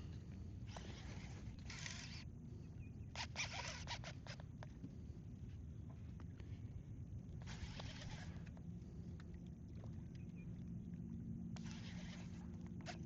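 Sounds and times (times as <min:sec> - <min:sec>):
wind and water rumble: 0:00.0 - 0:13.0
fishing reel rasping: 0:00.7 - 0:02.3, 0:03.1 - 0:04.4, 0:11.6 - 0:13.0.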